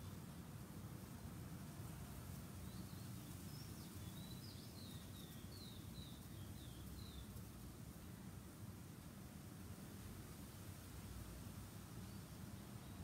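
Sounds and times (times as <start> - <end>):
faint bird chirping: 2.4 - 8.2, 12.0 - 13.0.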